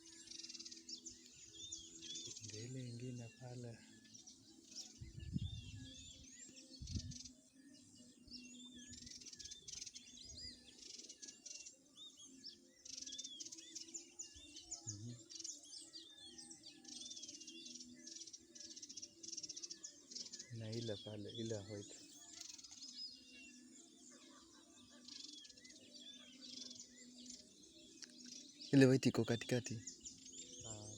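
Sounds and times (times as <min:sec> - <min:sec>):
small birds chirping and trilling: 0:00.0 - 0:30.9.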